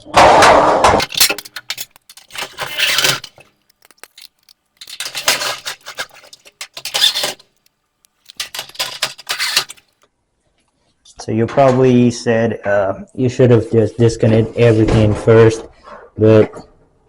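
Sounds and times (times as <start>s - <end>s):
screws clinking on sheet metal: 1.0s - 9.8s.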